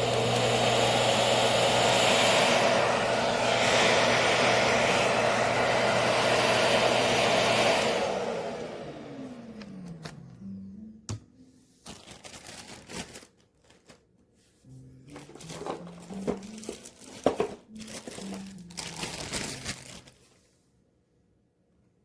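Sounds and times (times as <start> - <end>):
crinkling and rustling handling: 11.5 - 20.6.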